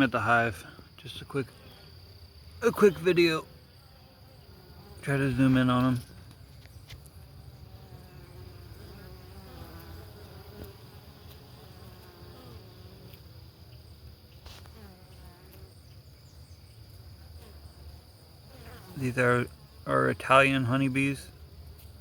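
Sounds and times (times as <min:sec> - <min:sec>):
single bees flying past: 0:03.7 - 0:19.1
bees buzzing: 0:03.9 - 0:13.5.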